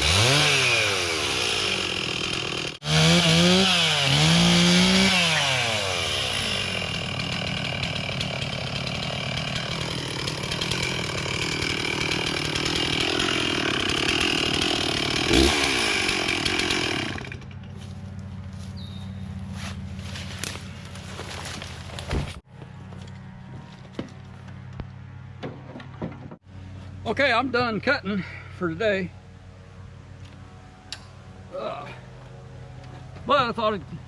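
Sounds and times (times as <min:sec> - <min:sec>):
chainsaw revving and cutting: 0:00.0 - 0:17.6.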